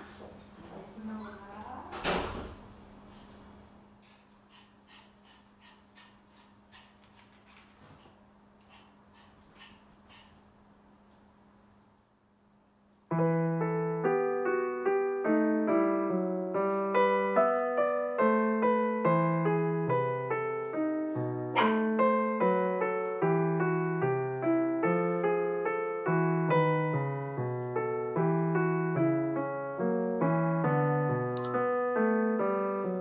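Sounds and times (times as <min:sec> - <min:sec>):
piano melody: 0:13.1 - 0:33.0.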